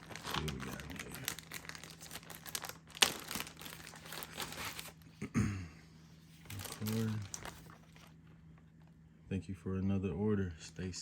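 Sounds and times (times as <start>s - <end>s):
packaging crinkling and rustling: 0.0s - 5.1s, 6.3s - 8.9s.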